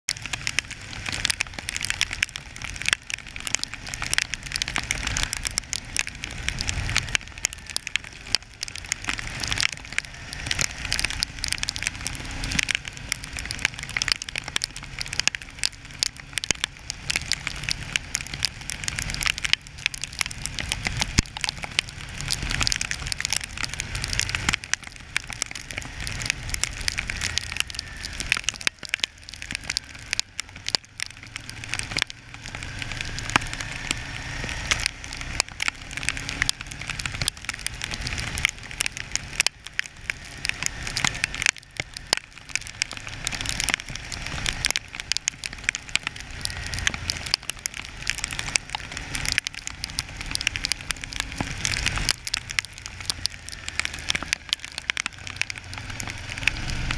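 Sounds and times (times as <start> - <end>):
raindrops ticking on camera: 0.0 - 56.9
wind rumble: 0.1 - 56.9.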